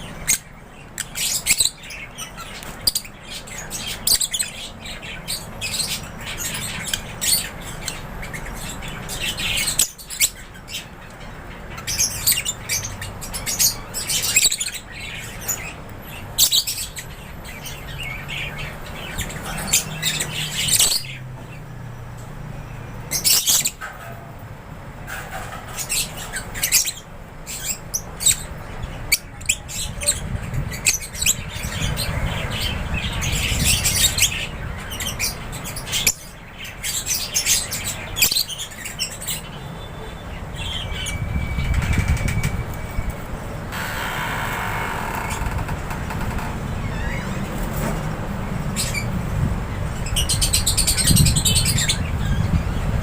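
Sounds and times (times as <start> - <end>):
lovebirds chattering: 0.0 - 21.6, 23.0 - 47.9, 48.7 - 53.0.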